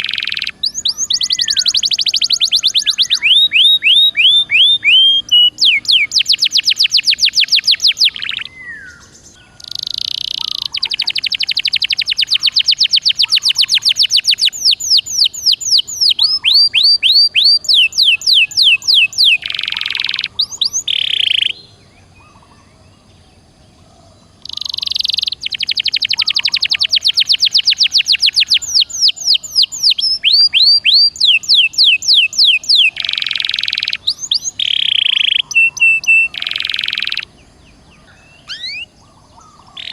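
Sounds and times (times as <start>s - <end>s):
canary singing rapid trills: 0.0s - 22.6s, 24.3s - 39.9s.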